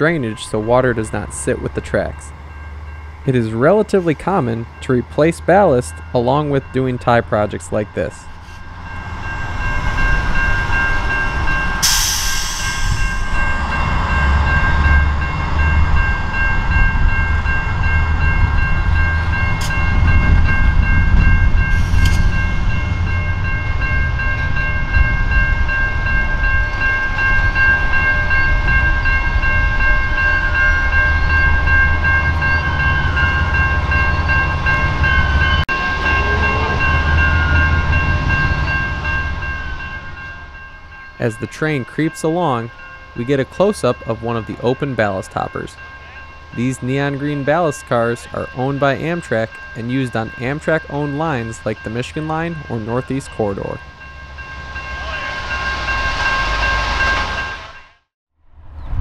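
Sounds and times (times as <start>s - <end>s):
train low rumble: 0.0s - 59.0s
burst of hiss: 11.8s - 13.2s.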